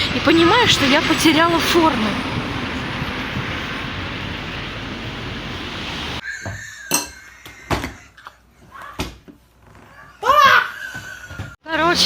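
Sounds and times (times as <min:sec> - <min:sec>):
outdoor street noise: 0:00.0 - 0:06.6, 0:11.6 - 0:12.0.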